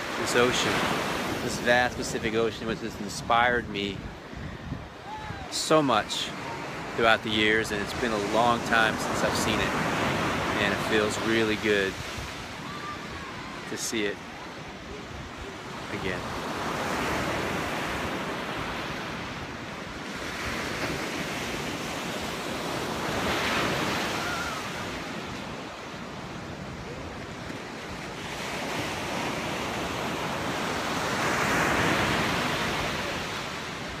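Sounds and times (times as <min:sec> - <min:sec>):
surf breaking on shore: 0:00.0 - 0:34.0
wind buffeting microphone: 0:03.4 - 0:05.5.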